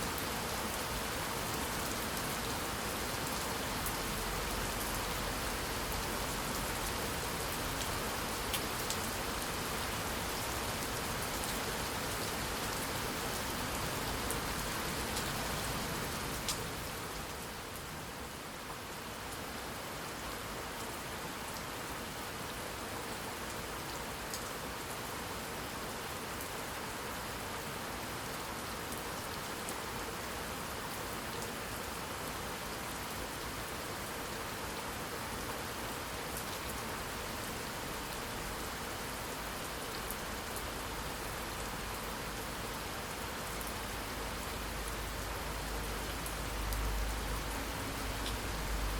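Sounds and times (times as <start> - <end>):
steady rain falling: 0.0 - 48.9
rain drops ticking: 0.2 - 16.9, 36.3 - 48.9.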